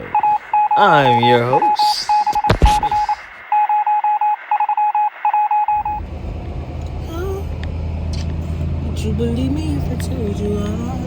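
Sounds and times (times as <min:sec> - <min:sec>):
short electronic beeps: 0:00.0 - 0:05.9
low vehicle engine rumble: 0:05.8 - 0:11.0.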